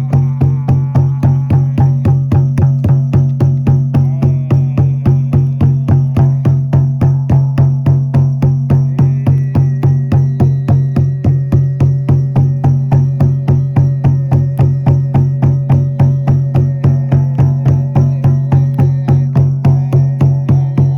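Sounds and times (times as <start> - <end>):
low ringing drone: 0.0 - 3.3, 8.3 - 20.9
frame drum beaten in rhythm: 0.0 - 20.9
thin high tone: 8.9 - 20.9.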